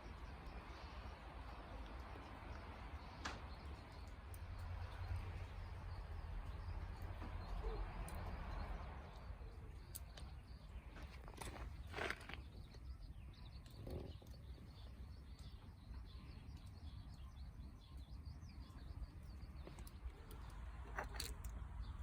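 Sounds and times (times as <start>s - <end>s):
campfire crackling: 19.0s - 22.0s.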